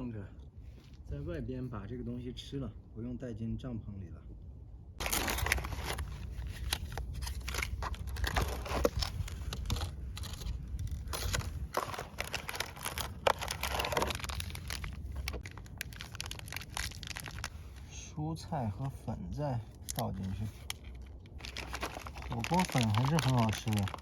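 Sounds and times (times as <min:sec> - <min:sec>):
plastic packaging tearing and crinkling: 0:05.0 - 0:17.9, 0:19.8 - 0:24.0.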